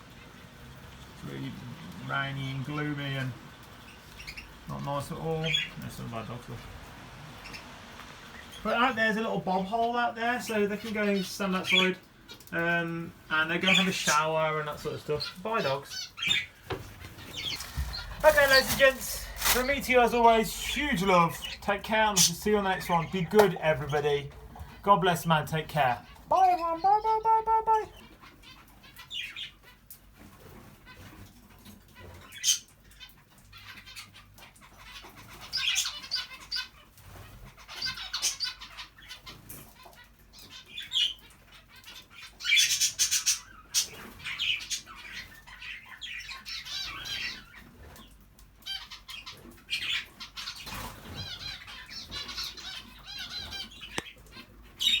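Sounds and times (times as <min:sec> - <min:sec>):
birds chirping and chattering: 0:00.0 - 0:55.0
wings fluttering: 0:16.2 - 0:21.6.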